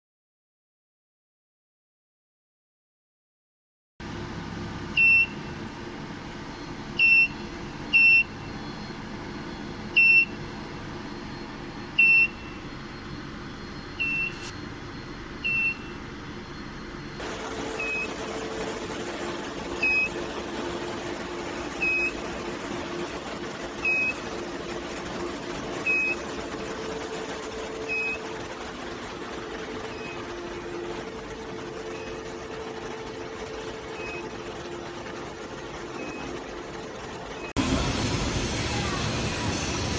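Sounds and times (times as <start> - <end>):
high-pitched electronic beeps: 4.0 - 17.2
steady machine hum: 4.0 - 19.6, 26.3 - 39.9.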